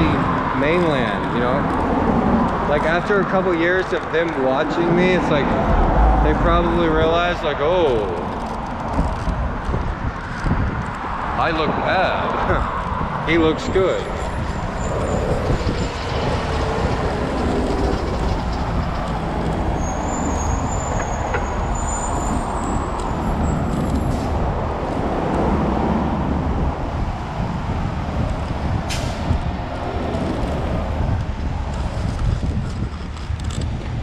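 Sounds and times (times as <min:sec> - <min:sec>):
street traffic rumble: 0:00.0 - 0:34.0
wind on microphone: 0:00.0 - 0:34.0.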